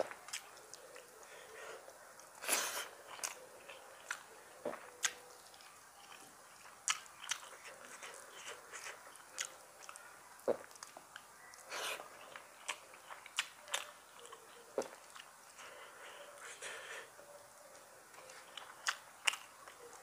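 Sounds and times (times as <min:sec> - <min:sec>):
wet chewing mouth clicks: 0:02.2 - 0:06.2, 0:06.8 - 0:15.6.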